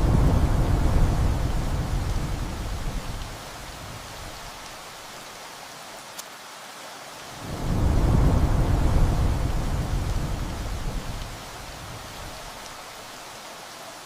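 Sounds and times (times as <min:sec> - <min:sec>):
thunder rumbling: 0:00.0 - 0:04.6, 0:07.4 - 0:12.7
steady rain: 0:00.0 - 0:14.0.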